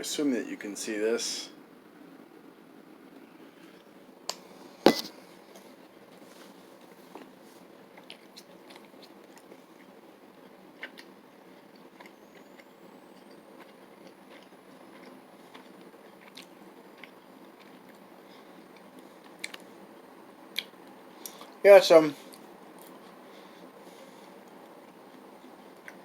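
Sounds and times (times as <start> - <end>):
low background hiss: 0.0 - 26.0
person chewing: 7.9 - 19.7, 20.5 - 21.6.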